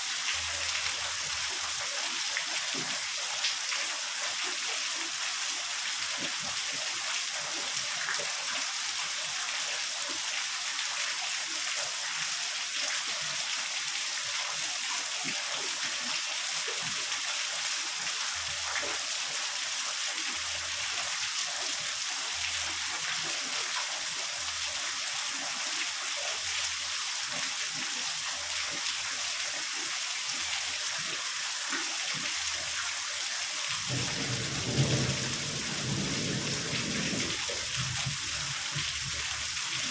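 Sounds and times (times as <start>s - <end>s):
heavy rain: 0.0s - 4.0s, 19.9s - 24.6s, 32.4s - 39.9s
low rumble of thunder: 33.8s - 38.3s.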